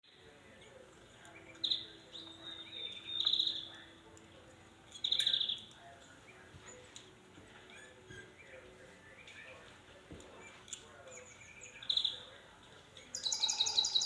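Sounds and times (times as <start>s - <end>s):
small bird chirping: 1.3s - 3.9s, 4.9s - 5.7s, 10.4s - 12.4s, 13.0s - 14.0s
loud rapid bird trills: 13.1s - 14.0s.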